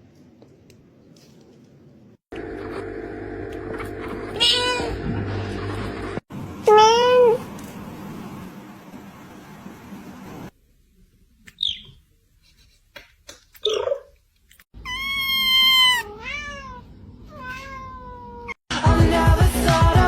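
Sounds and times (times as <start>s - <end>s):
cat meowing: 4.4s - 5.0s, 14.8s - 18.6s
loud music: 18.7s - 20.0s.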